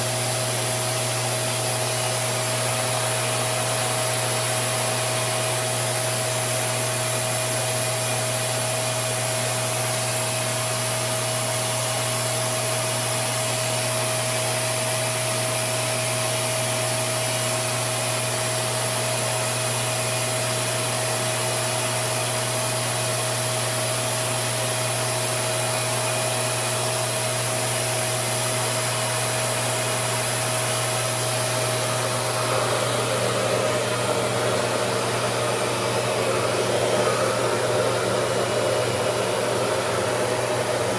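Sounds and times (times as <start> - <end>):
blow dryer rushing air: 0.0 - 40.9
blow dryer whine and hum: 0.0 - 40.9.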